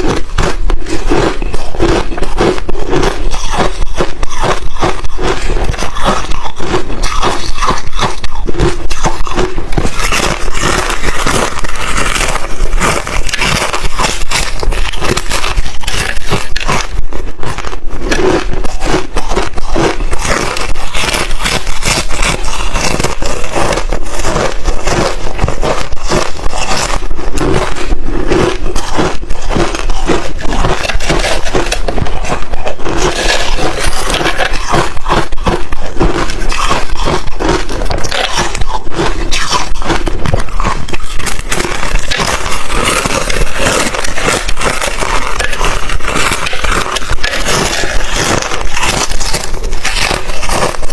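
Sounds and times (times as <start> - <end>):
chewing crushed ice: 0.0 - 50.9.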